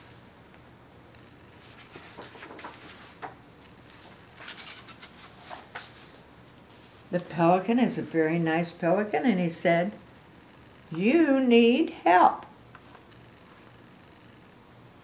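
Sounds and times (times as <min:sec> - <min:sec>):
paper pages rustling: 0:01.6 - 0:07.1.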